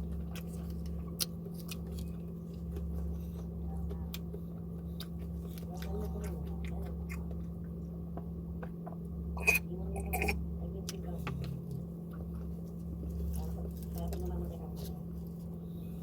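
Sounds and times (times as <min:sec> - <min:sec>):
person chewing crunchy food: 0:00.0 - 0:07.8, 0:11.9 - 0:14.2
low electrical hum: 0:00.0 - 0:16.0.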